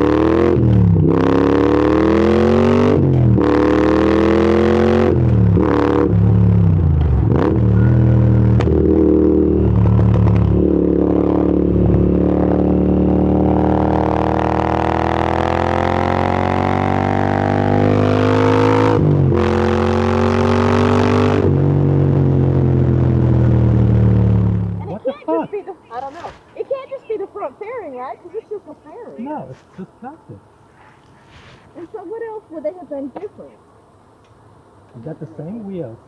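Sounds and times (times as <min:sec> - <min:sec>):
motorcycle engine accelerating: 0:00.0 - 0:25.1.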